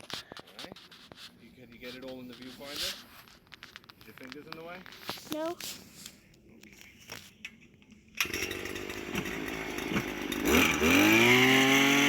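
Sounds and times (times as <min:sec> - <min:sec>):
small petrol engine idling and revving: 0:08.2 - 0:12.0.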